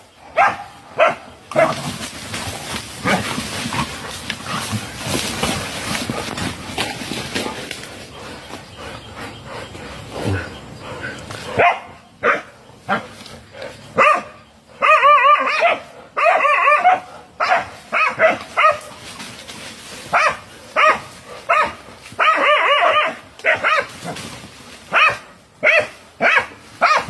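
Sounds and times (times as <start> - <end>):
dogs barking: 0.3 - 2.0, 2.9 - 6.5, 8.2 - 19.1, 20.0 - 24.3, 24.9 - 27.0
dogs yelping: 8.1 - 19.0, 20.1 - 24.2, 24.9 - 27.0.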